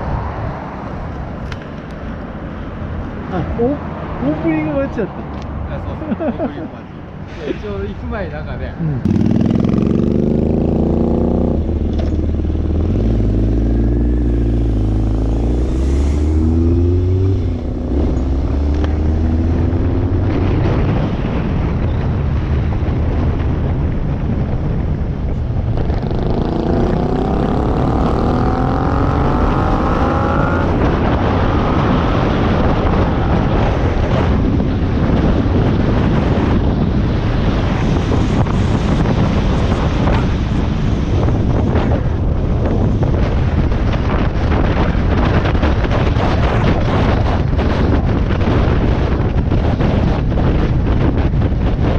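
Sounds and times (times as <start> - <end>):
wind on microphone: 0.0 - 51.9
motorcycle engine accelerating: 8.8 - 22.3, 25.4 - 51.9.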